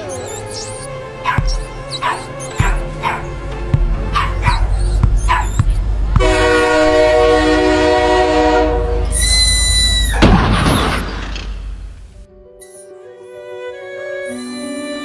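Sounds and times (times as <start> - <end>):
loud horn blast: 1.8 - 9.7
shrill whistle: 14.3 - 15.0.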